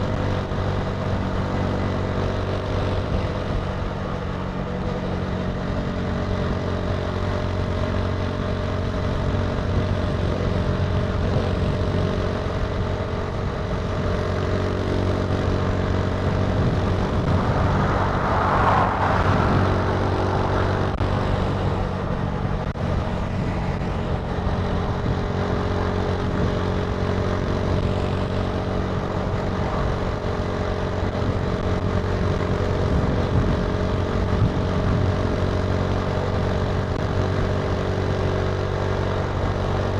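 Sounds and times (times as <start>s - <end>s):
motorcycle engine running: 0.0s - 39.9s
rushing noise: 15.5s - 21.7s.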